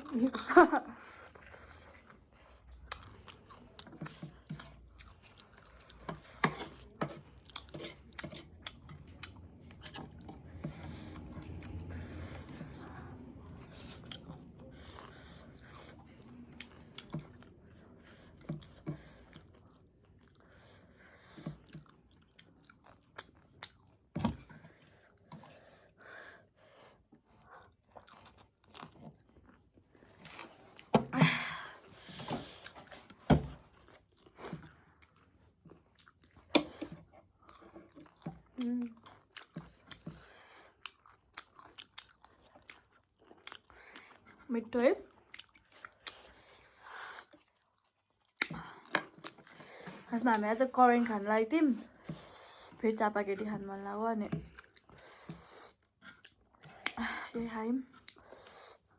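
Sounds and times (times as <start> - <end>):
person chewing crunchy food: 1.0 - 25.5, 27.4 - 31.1, 32.0 - 44.5, 45.1 - 50.5, 54.3 - 57.0.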